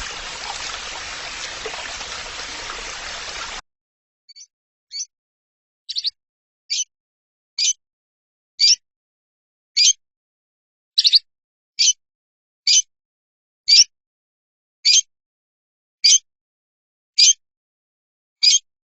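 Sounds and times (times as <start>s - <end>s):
bird chirping: 0.0s - 3.6s.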